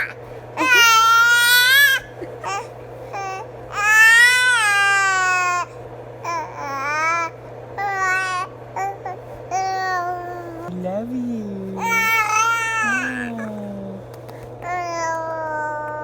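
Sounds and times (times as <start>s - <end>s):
infant crying: 11.7s - 14.0s.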